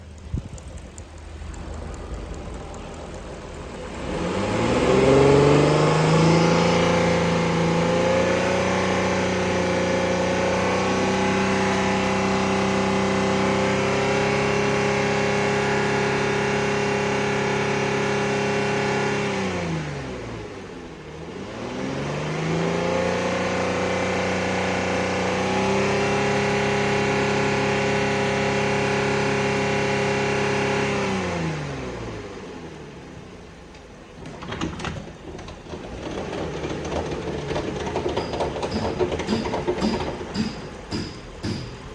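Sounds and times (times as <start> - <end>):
car engine revving: 1.2 - 13.2.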